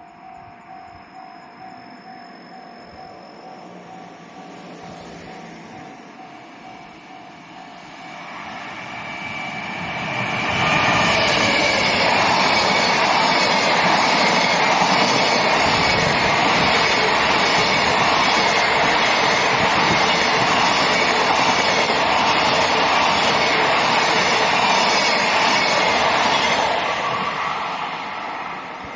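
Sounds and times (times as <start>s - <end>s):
faint whine: 0.0s - 5.2s
train wheels rumbling on rails: 0.0s - 28.9s.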